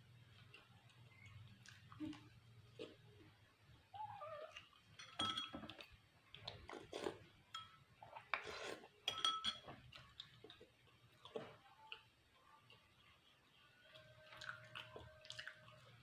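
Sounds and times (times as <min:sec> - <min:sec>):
utensils clinking on a dish: 0:04.9 - 0:05.8, 0:07.5 - 0:07.8, 0:09.0 - 0:10.0.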